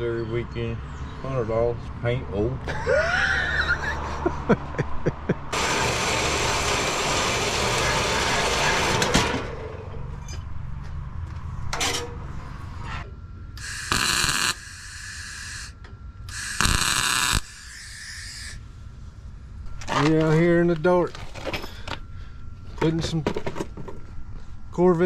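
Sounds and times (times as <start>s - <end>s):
mig welder welding: 5.5s - 9.7s, 13.6s - 18.7s.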